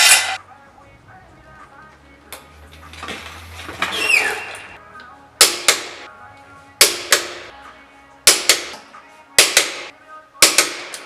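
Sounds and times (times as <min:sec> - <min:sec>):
music with steady beat: 0:04.8 - 0:11.0.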